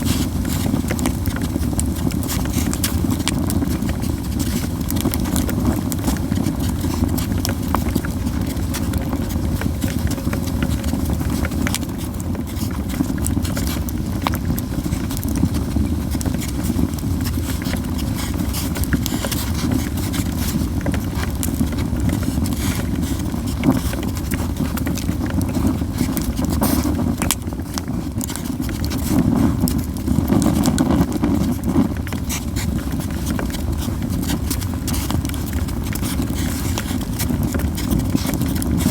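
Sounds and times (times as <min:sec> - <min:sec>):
campfire crackling and popping: 0:00.0 - 0:38.9
low fire rumble: 0:00.0 - 0:38.9.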